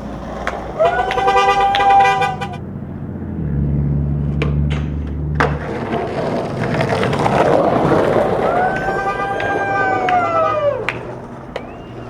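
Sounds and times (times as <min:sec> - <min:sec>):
skateboard clacks: 0:00.0 - 0:02.6, 0:04.2 - 0:12.0
skateboard wheels rumbling: 0:00.0 - 0:12.0.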